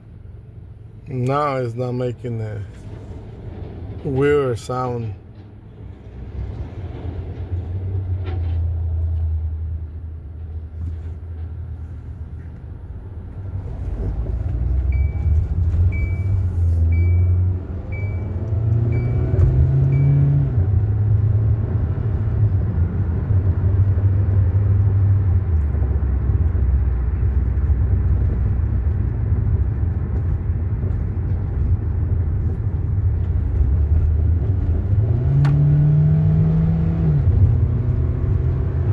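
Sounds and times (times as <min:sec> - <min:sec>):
car engine and road rumble: 0:00.0 - 0:38.9
short high beeps: 0:19.0 - 0:20.3.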